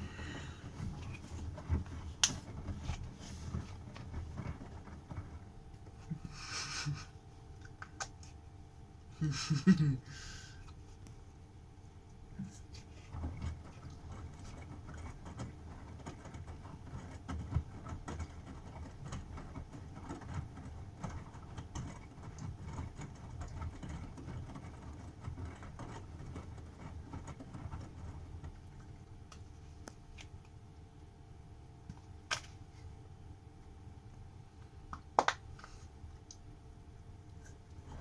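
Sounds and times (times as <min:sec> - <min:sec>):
washing machine drum tumbling laundry: 0:00.0 - 0:07.0, 0:12.4 - 0:30.2, 0:37.0 - 0:38.0.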